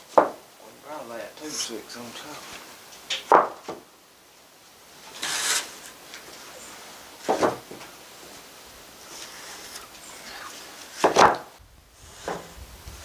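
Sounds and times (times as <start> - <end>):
wooden boards knocking: 0.1 - 0.4, 3.1 - 3.8, 7.2 - 7.9, 11.0 - 11.5
board scraping slide: 5.0 - 7.7, 9.0 - 13.0.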